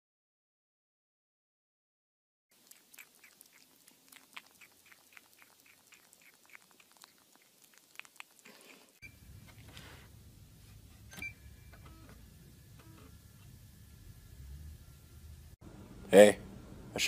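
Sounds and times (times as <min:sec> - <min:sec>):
kitten chewing plastic lid: 0:02.6 - 0:09.7.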